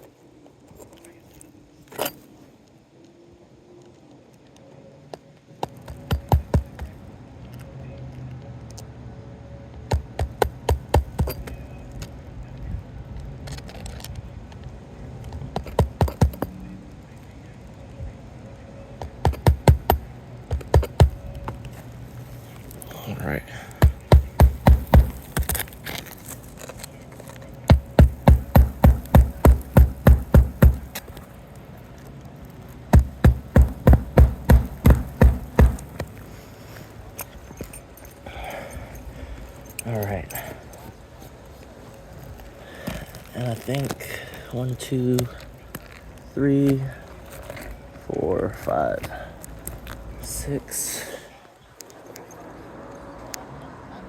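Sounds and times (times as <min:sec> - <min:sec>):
hammer striking nail: 0:05.9 - 0:06.9, 0:09.9 - 0:11.4, 0:15.6 - 0:16.5, 0:19.2 - 0:21.2, 0:23.8 - 0:25.6, 0:27.7 - 0:31.1, 0:32.9 - 0:36.1.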